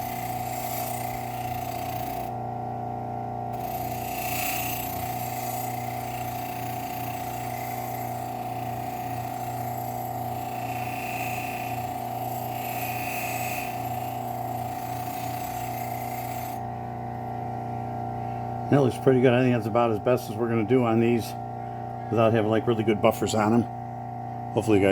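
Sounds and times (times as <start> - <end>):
blade hissing against grinding wheel: 0.0 - 2.4, 3.6 - 16.6
bench grinder humming and whining: 0.0 - 24.9.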